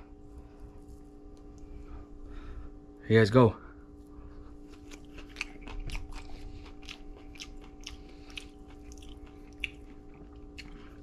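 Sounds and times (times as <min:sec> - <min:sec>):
steady low hum: 0:00.0 - 0:11.0
person chewing food: 0:04.3 - 0:11.0
mouth clicks and crunches: 0:04.6 - 0:11.0.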